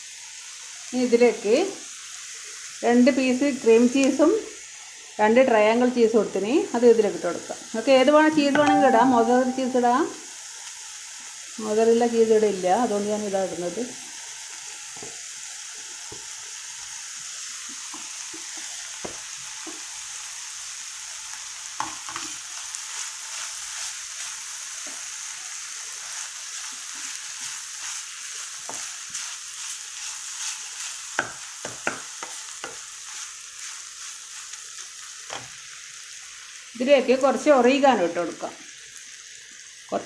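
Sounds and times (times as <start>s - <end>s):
food sizzling in a pan: 0.0s - 40.0s
wooden spatula scraping a pan: 21.8s - 34.6s
spatula knocking against pan: 31.2s - 32.8s.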